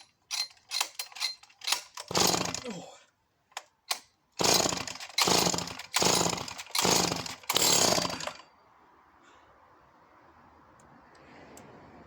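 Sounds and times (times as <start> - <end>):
chainsaw recoil starter pulls: 0.0 - 2.7, 3.6 - 8.4.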